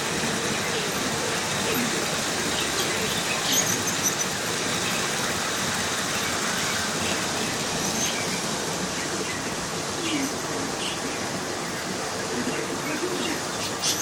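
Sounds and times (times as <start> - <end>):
model train rolling on track: 0.0 - 14.0.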